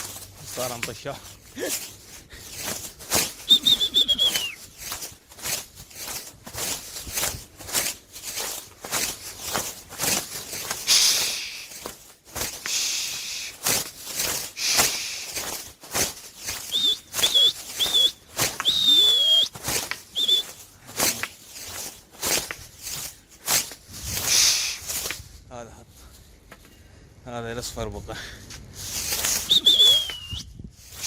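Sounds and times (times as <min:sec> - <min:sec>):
rustling and knocking: 0:00.0 - 0:12.8, 0:13.6 - 0:24.3
short high whistles: 0:03.2 - 0:04.6, 0:10.9 - 0:11.7, 0:16.6 - 0:20.6, 0:24.3 - 0:25.0, 0:29.2 - 0:30.6.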